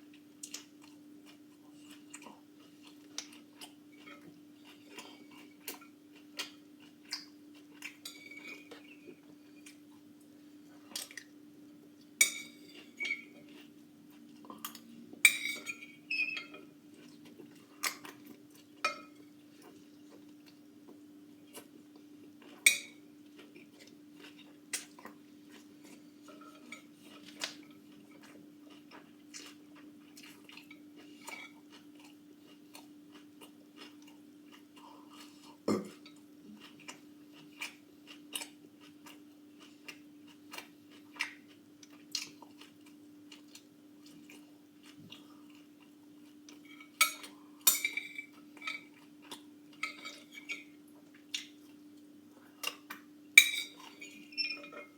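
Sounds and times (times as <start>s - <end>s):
utensils clinking against dishes: 12.2s - 13.3s, 14.7s - 16.6s, 46.6s - 49.0s, 53.4s - 54.9s.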